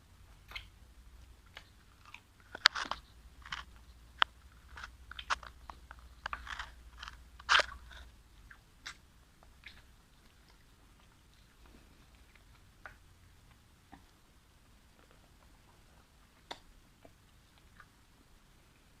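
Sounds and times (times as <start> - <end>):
person chewing crunchy food: 0.3 - 14.2.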